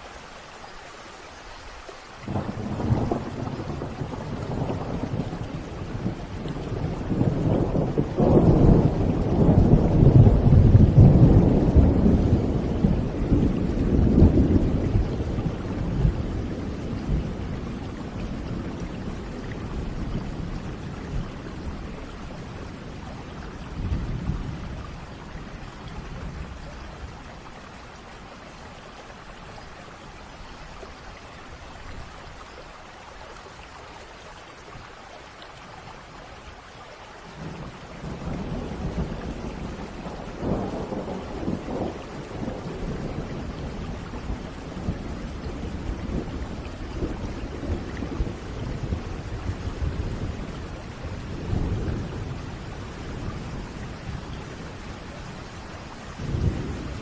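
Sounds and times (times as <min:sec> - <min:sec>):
rain hissing: 0:00.0 - 0:57.0
thunder rumbling: 0:02.3 - 0:27.5, 0:37.4 - 0:57.0.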